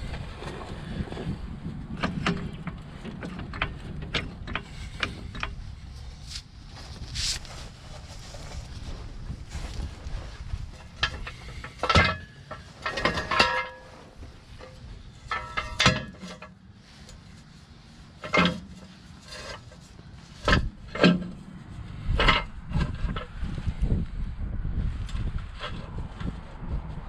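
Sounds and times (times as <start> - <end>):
low wind rumble: 0.0 - 27.0
metal tools clanking: 10.8 - 17.3, 18.2 - 21.4.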